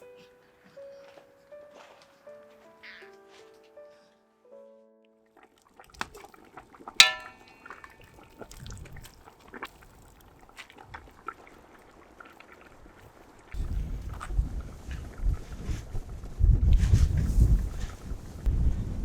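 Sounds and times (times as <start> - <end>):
loud ringing clink: 7.0 - 7.9
utensils and dishes clattering: 7.0 - 7.9.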